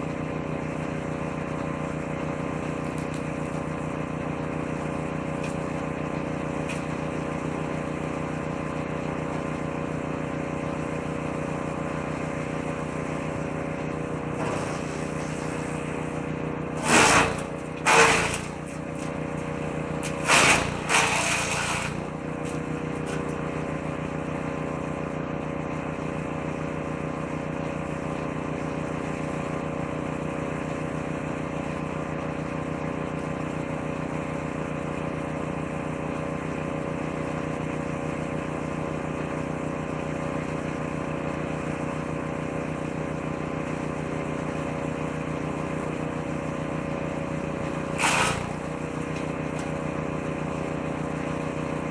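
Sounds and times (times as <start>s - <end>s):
shredder engine running: 0.0s - 51.9s
branches shredded in drum: 14.2s - 24.4s, 47.4s - 51.4s.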